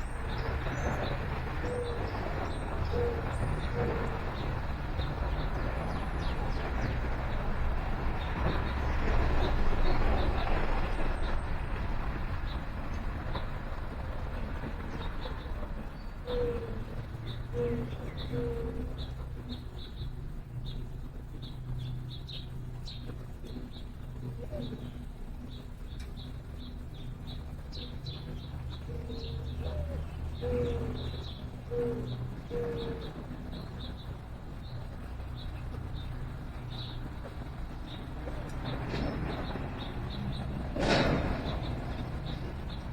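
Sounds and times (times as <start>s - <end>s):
passing vehicle: 0.0s - 42.9s
dove cooing: 0.9s - 5.3s, 16.2s - 19.7s, 23.5s - 25.2s, 27.8s - 35.5s
small birds chirping: 14.3s - 42.9s.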